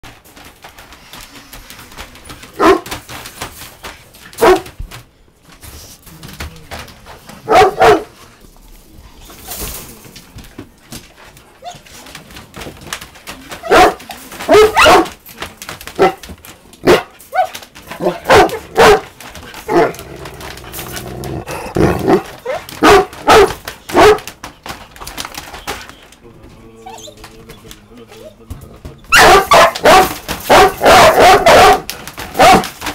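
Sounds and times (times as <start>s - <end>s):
dog barking loudly: 2.6s - 2.9s, 4.4s - 4.7s, 7.4s - 8.1s, 13.6s - 15.1s, 16.0s - 16.2s, 16.8s - 20.0s, 21.4s - 24.3s, 29.1s - 32.8s.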